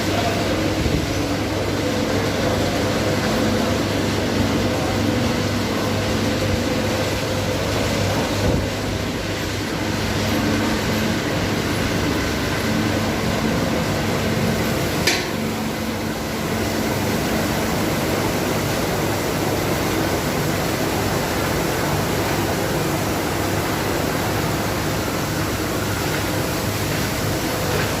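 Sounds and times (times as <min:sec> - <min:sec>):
car wash rushing noise: 0:00.0 - 0:28.0.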